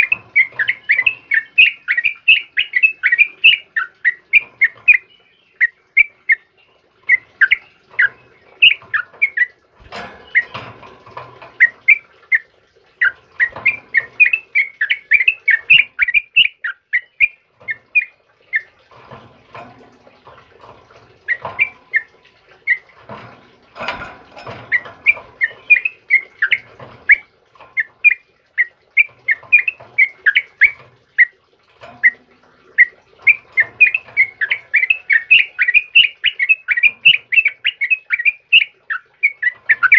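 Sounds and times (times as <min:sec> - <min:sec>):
bird chirping: 0:00.0 - 0:31.3, 0:31.9 - 0:39.9.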